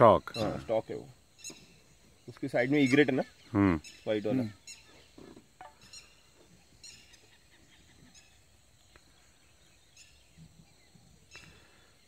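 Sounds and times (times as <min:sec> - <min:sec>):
high bird chirps: 0:01.3 - 0:08.5.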